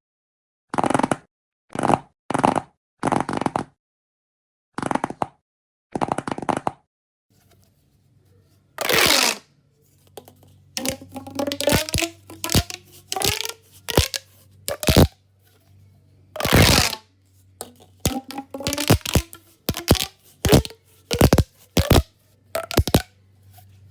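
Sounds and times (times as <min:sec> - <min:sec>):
fidget toy crinkling and clicking: 0:08.8 - 0:15.8, 0:16.4 - 0:23.9.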